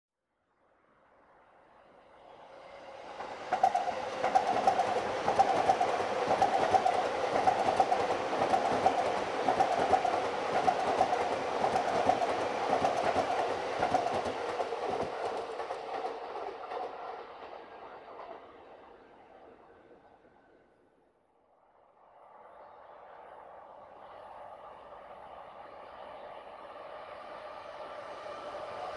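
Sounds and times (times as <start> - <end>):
electric train whine: 1.0 - 28.9
train wheels rumbling and clicking: 3.2 - 19.0.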